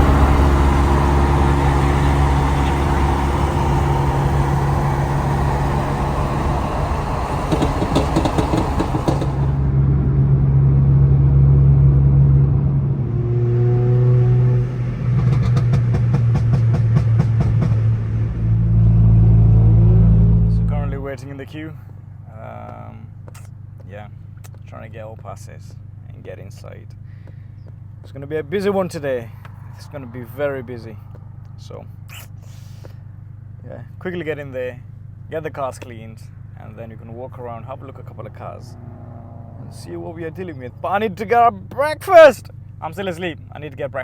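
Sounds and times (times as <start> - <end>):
car engine humming: 0.0 - 9.8, 36.3 - 42.8
road and tyre noise: 0.0 - 26.2, 26.8 - 43.9.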